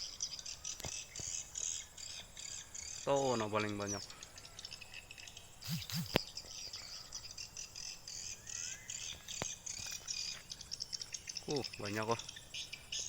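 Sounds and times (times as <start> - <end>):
swiftlets twittering: 5.6 - 6.2
sharp clicks: 5.7 - 6.3.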